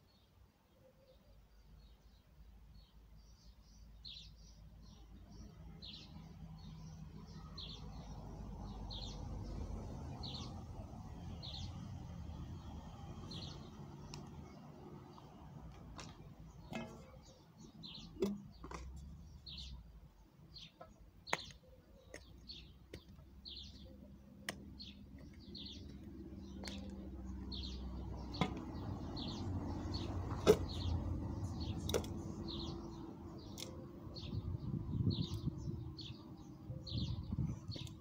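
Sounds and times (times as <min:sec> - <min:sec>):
small bird chirping: 0:00.0 - 0:38.0
sharp clicks and knocks: 0:18.0 - 0:19.1.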